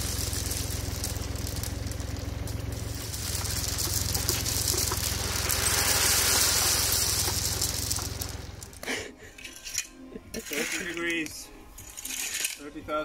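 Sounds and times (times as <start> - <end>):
loader engine idling: 0.0 - 8.8
gravel pouring and rattling: 0.0 - 12.8.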